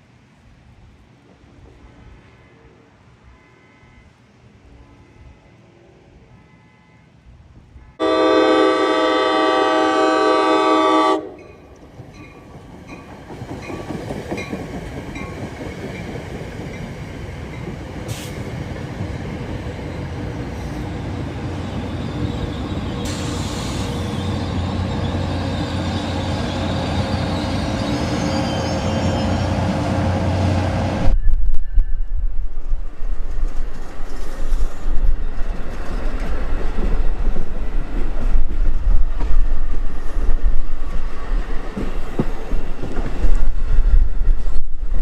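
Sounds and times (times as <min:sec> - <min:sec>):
train rumbling past: 0:00.0 - 0:45.0
train horn: 0:02.0 - 0:11.6
faint high squeal: 0:03.3 - 0:04.2, 0:20.0 - 0:29.7, 0:31.1 - 0:32.6.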